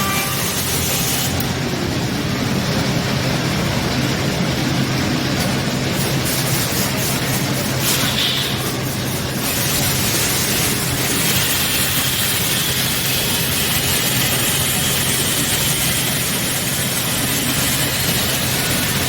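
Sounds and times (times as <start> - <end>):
woodworking machine running: 8.4 - 19.0.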